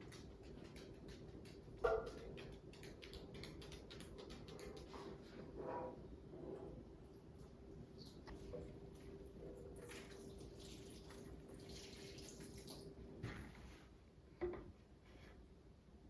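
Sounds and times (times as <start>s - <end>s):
faint running water: 7.0s - 13.8s.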